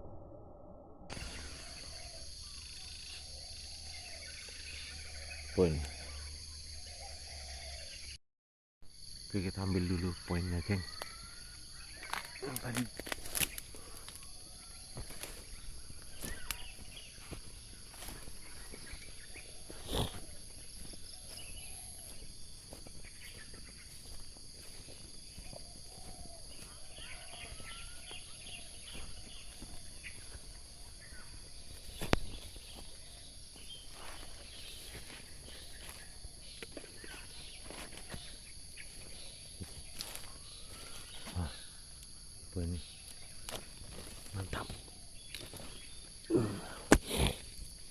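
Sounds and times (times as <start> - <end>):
high-pitched insect chorus: 1.1 - 8.2, 8.9 - 47.9
footsteps rustling through undergrowth: 11.9 - 41.4, 43.0 - 46.2.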